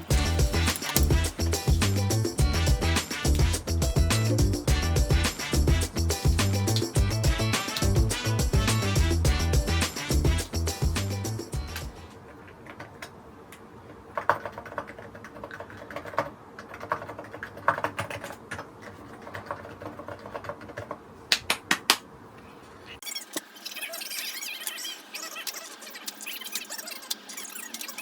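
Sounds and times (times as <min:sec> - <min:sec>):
mechanical keyboard keys clicking: 0:00.5 - 0:01.2.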